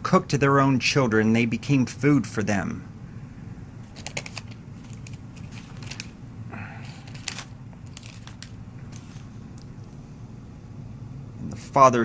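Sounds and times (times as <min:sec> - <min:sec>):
low room hum: 0:00.0 - 0:12.0
paper pages rustling: 0:03.8 - 0:06.2, 0:06.8 - 0:10.0.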